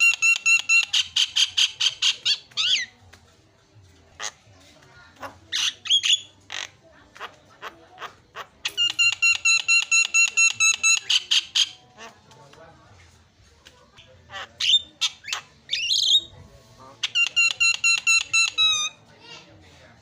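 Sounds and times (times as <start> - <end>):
bird squawking and clicking: 0.0 - 2.9, 5.2 - 12.2, 17.0 - 18.8.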